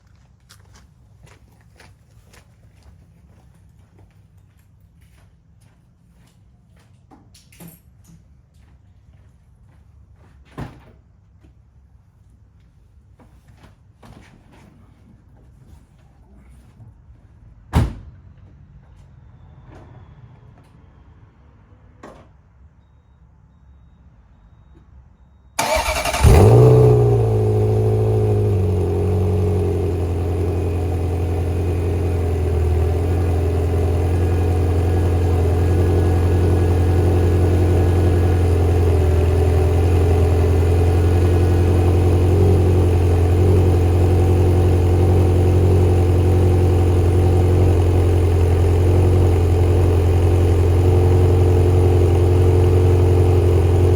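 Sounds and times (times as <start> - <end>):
engine starter turning: 25.6 - 29.4
car engine revving and idling: 25.6 - 53.9.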